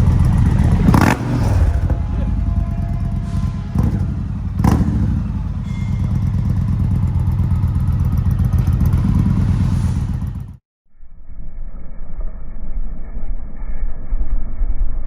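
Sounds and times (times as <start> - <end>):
motorcycle exhaust note: 0.0 - 10.6.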